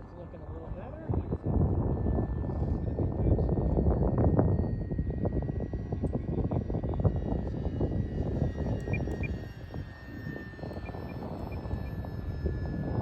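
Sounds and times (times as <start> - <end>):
model plane motor whine: 0.1 - 13.0
wind buffeting microphone: 0.5 - 13.0.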